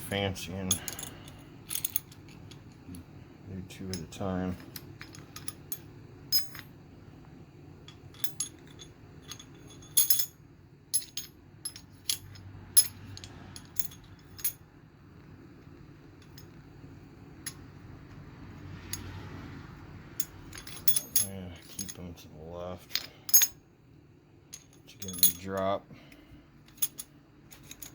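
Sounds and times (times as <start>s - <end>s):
metal engine parts clinking: 0.0s - 3.1s, 3.7s - 6.8s, 7.8s - 14.6s, 16.2s - 16.7s, 17.4s - 17.7s, 20.1s - 23.6s, 24.5s - 27.9s
steady low hum: 0.0s - 27.9s.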